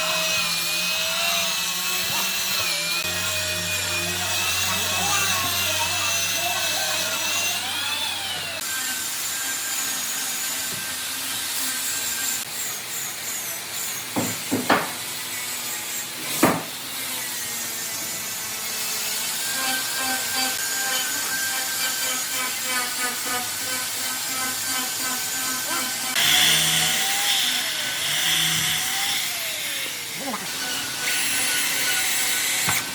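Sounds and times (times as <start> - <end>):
power tools cutting wood: 0.0 - 32.9
sharp knocks: 14.2 - 15.0, 16.4 - 16.7.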